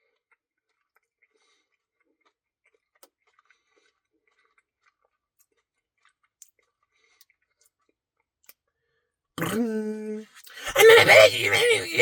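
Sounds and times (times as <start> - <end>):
chewing: 0.7 - 7.7.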